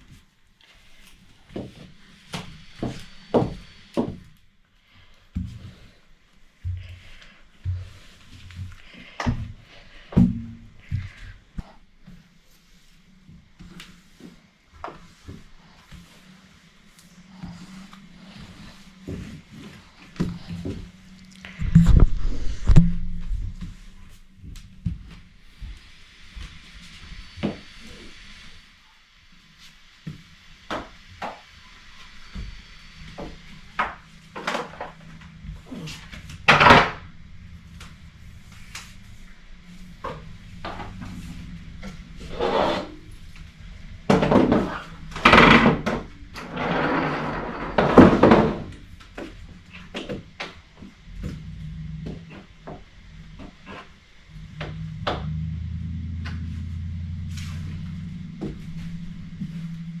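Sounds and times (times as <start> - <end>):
low steady hum: 0.0 - 60.0
rubbing or scraping: 13.0 - 24.3, 32.9 - 48.9, 51.1 - 60.0.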